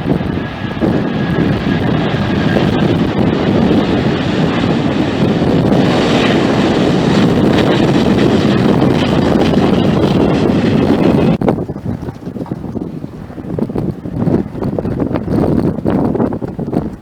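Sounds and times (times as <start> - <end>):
jet engines roaring: 0.0 - 17.0
wind buffeting microphone: 0.0 - 17.0.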